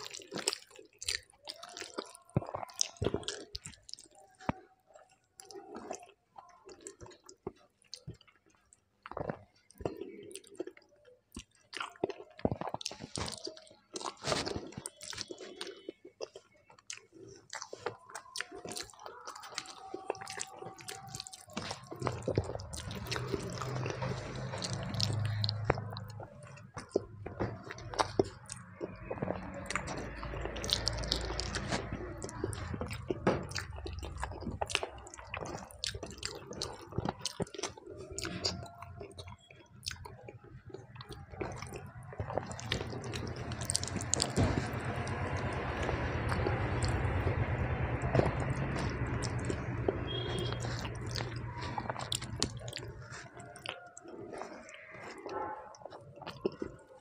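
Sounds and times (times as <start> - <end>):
wet chewing and lip smacking: 0.0 - 57.0.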